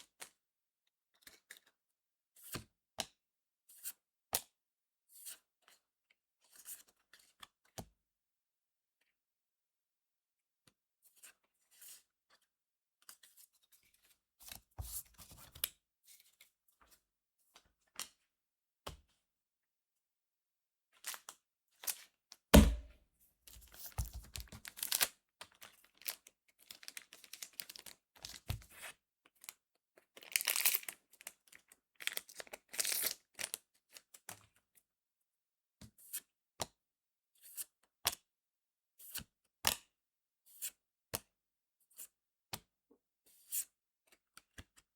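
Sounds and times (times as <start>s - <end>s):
louder knock: 22.6s - 22.9s
wrapper tearing and crinkling: 30.3s - 30.8s.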